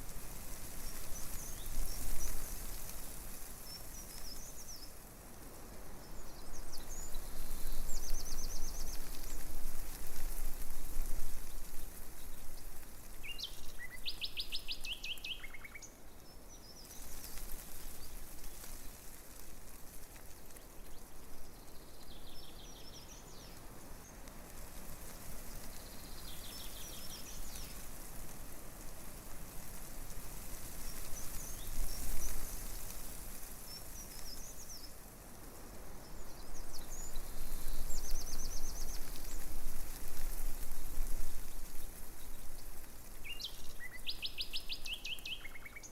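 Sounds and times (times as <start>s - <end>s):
breeze rustling tree leaves: 0.0s - 45.9s
songbirds singing: 6.0s - 19.1s, 20.4s - 24.3s, 25.2s - 27.9s, 30.6s - 32.9s, 33.6s - 35.0s, 35.9s - 45.9s.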